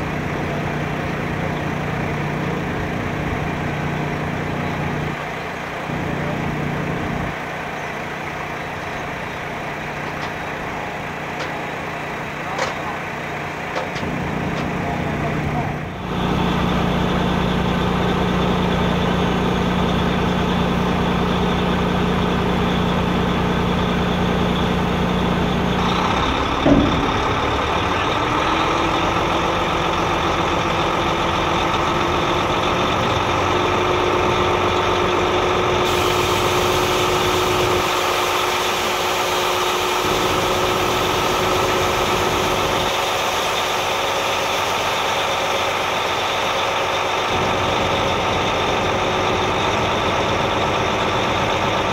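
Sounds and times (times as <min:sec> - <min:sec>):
engine whine: 0:00.0 - 0:51.9
truck engine idling: 0:00.0 - 0:51.9
short clunk: 0:26.5 - 0:27.5.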